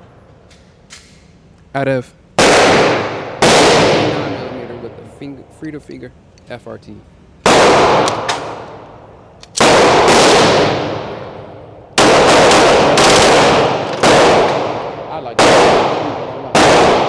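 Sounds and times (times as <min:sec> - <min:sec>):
pistol firing fast shots: 0:02.4 - 0:04.5, 0:07.4 - 0:08.9, 0:09.5 - 0:11.4, 0:12.0 - 0:17.0
gunshot echo: 0:02.4 - 0:04.9, 0:09.6 - 0:17.0.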